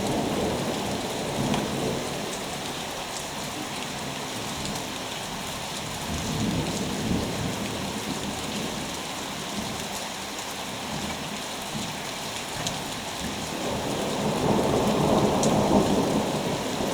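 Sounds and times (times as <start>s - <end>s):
heavy rain falling: 0.0s - 16.9s.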